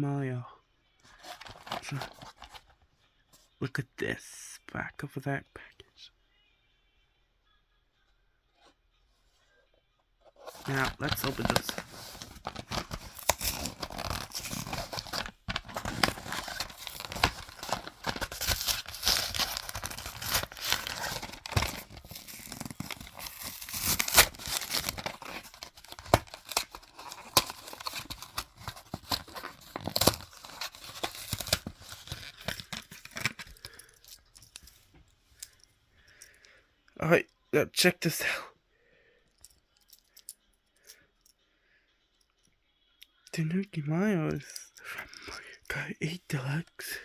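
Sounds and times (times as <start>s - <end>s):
cardboard tearing: 10.4s - 33.8s
plastic packaging crinkling: 10.4s - 34.8s.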